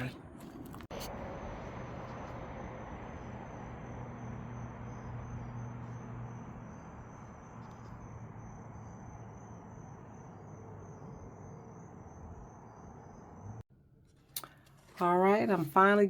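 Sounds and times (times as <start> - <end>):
outdoor rush: 0.0 - 13.6
low hum: 0.0 - 14.8
crickets trilling: 0.9 - 13.6.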